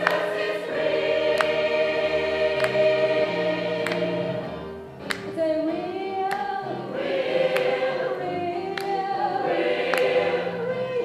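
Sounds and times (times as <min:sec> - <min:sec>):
gospel choir singing: 0:00.0 - 0:11.0.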